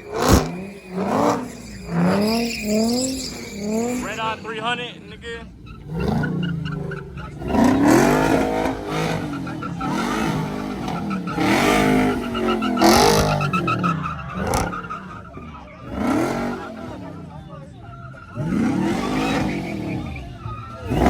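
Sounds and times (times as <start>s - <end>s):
car engine revving hard: 0.0s - 21.0s
tire squeal: 0.0s - 21.0s.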